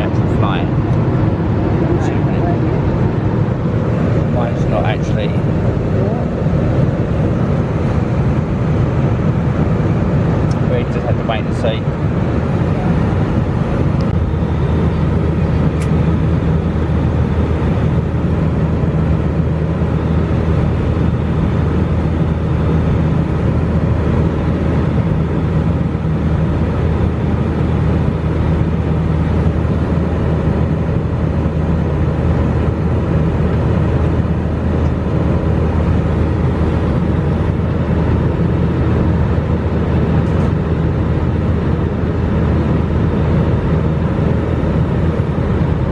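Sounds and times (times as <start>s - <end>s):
rushing air: 0.0s - 10.7s
jet engine cabin drone: 0.0s - 45.9s.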